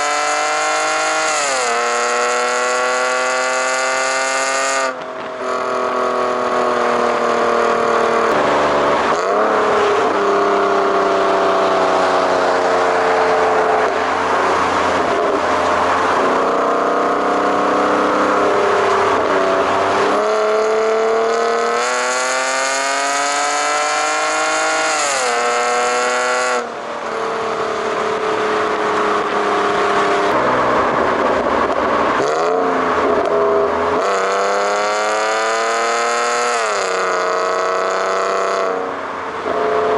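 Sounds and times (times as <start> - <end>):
car engine and exhaust running: 0.0 - 39.9.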